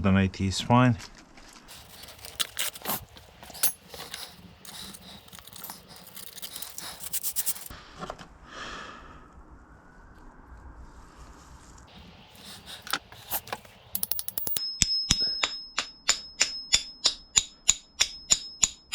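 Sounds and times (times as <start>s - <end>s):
sandpaper rubbing on metal: 1.7s - 7.7s, 12.4s - 13.7s.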